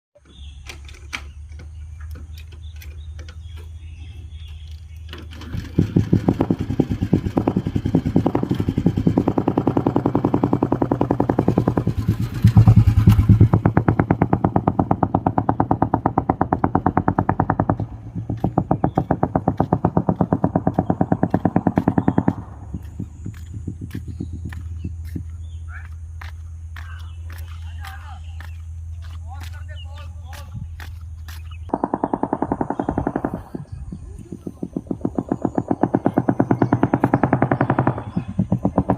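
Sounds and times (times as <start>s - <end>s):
motorcycle engine thumping: 0.2s - 38.9s.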